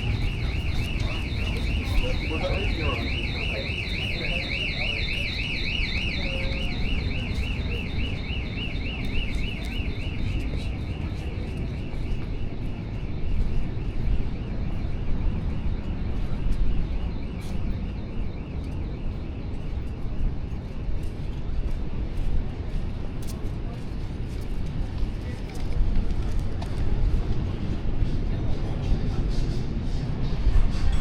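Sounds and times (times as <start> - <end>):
car alarm warbling: 0.0 - 10.6
low rumble of street noise: 0.0 - 31.0.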